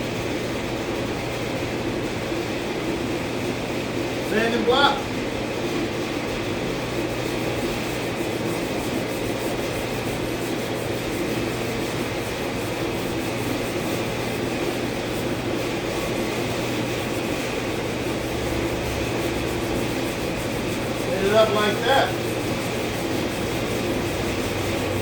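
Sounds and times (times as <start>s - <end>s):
low machine hum: 0.0s - 25.0s
sanding block rubbing on panel: 6.4s - 25.0s.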